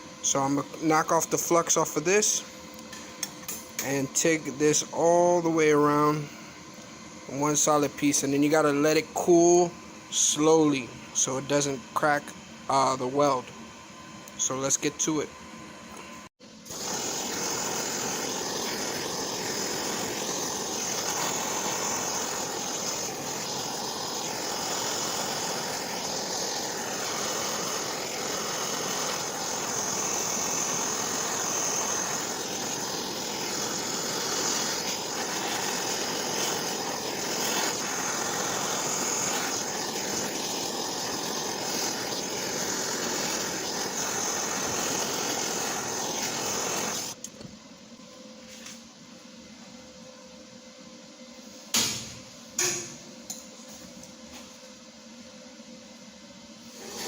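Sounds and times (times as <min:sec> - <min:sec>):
welding arc crackling hiss: 0:00.0 - 0:06.3, 0:16.6 - 0:47.4, 0:51.6 - 0:54.5, 0:56.6 - 0:57.0.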